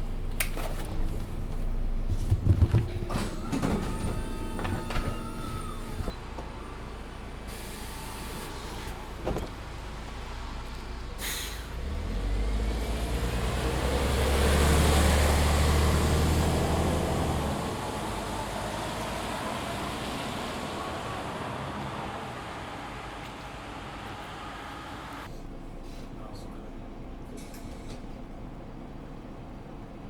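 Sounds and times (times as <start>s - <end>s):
bus diesel engine droning: 0.0s - 30.0s
road noise: 0.0s - 30.0s
bus click: 0.3s - 1.3s, 2.2s - 6.6s, 7.8s - 9.6s, 27.3s - 28.2s.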